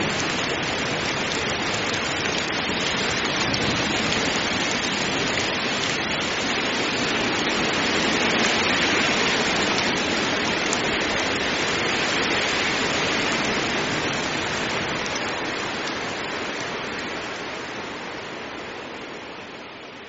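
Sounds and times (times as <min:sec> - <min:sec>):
heavy rain falling: 0:00.0 - 0:20.0.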